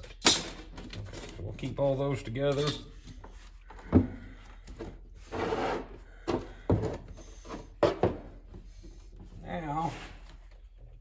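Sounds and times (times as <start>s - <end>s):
parts knocking on workbench: 7.8s - 8.4s.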